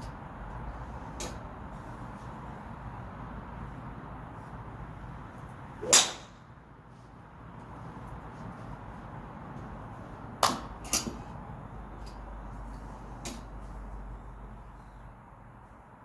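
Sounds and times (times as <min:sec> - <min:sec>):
golf club striking ball: 0:05.8 - 0:06.4.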